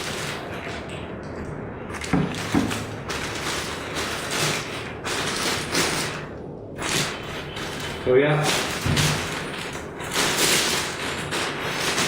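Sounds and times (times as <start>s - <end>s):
packaging rustling: 1.9s - 6.2s, 6.8s - 12.0s.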